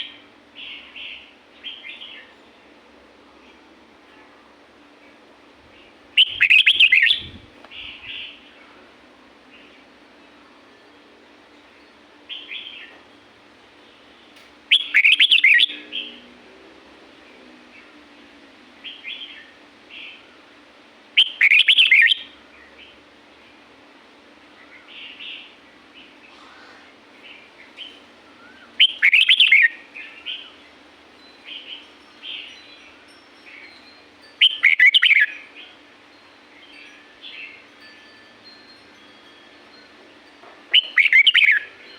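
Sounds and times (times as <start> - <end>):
soft bird chirps: 5.8 - 8.8, 24.6 - 35.8, 40.7 - 41.9.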